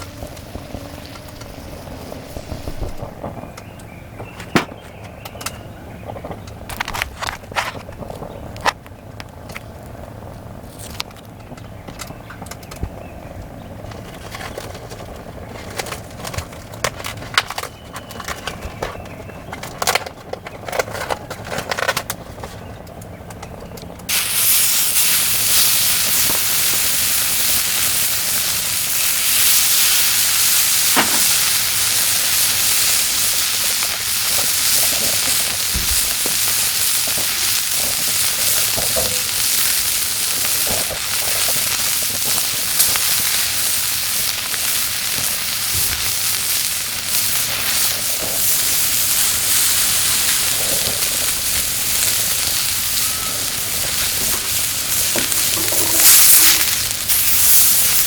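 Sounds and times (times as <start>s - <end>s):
meat sizzling on hot plate: 24.1s - 58.0s.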